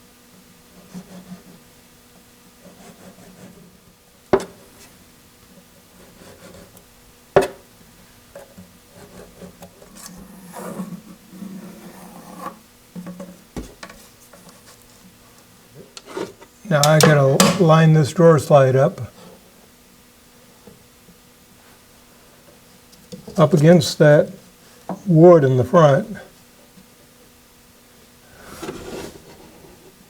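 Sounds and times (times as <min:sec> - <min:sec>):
drawer slide scuffing on wood: 0:28.3 - 0:29.9.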